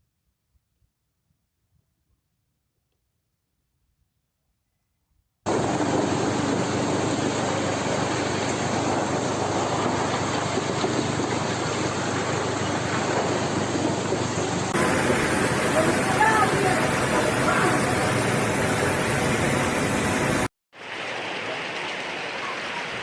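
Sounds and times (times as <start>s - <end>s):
floodwater rushing: 5.5s - 23.0s.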